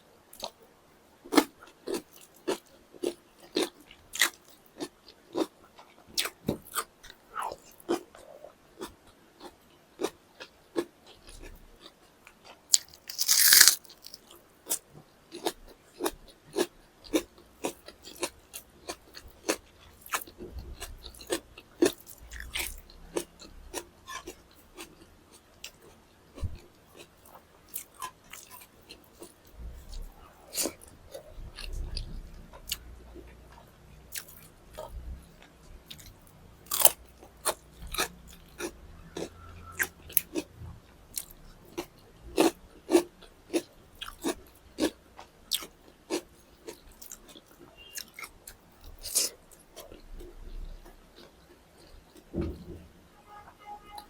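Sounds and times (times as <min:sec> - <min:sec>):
person chewing and crunching food: 0:00.3 - 0:00.6, 0:01.3 - 0:40.5, 0:41.1 - 0:52.3.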